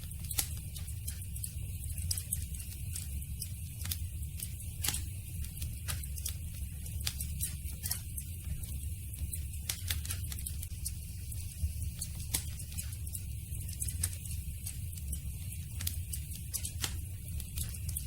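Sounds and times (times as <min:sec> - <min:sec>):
low fire rumble: 0:00.0 - 0:18.0
wood crackling and popping: 0:00.0 - 0:18.0.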